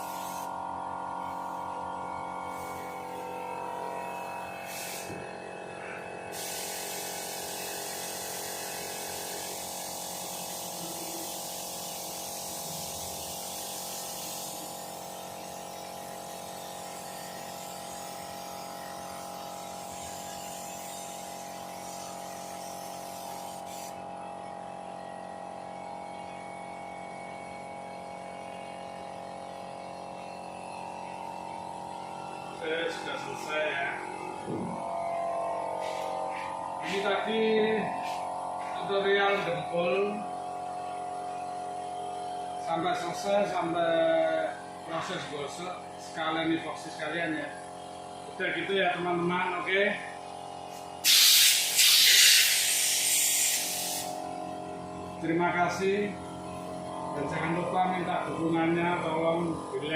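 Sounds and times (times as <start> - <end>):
spray gun hissing: 0.0 - 0.6, 1.2 - 1.8, 2.5 - 5.2, 6.3 - 24.0, 35.6 - 39.5, 50.7 - 54.4
steady hum: 27.9 - 43.5.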